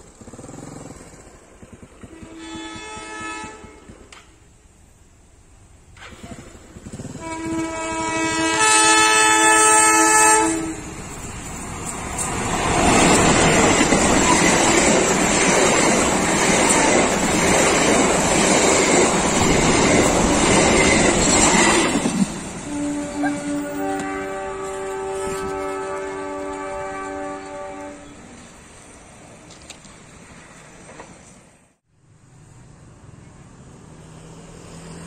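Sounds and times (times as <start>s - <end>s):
train horn blast: 2.0s - 4.3s, 7.0s - 11.1s, 22.5s - 28.5s.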